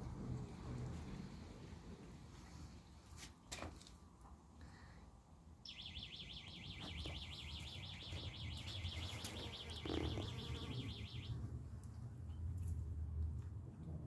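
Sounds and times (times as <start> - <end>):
bird high trill: 5.7 - 11.4.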